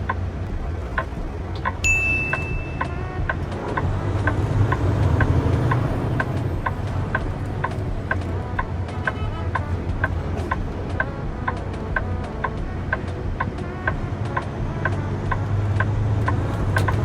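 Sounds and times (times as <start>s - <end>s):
turn signal ticking: 0.0s - 17.0s
vehicle road and engine rumble: 0.0s - 17.0s.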